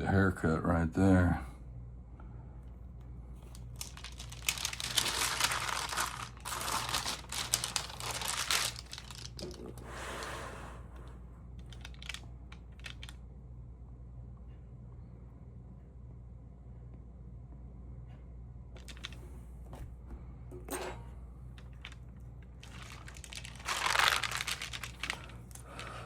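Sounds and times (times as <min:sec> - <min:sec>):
album pages rustling: 0:03.4 - 0:09.9, 0:18.8 - 0:19.2, 0:21.6 - 0:26.0.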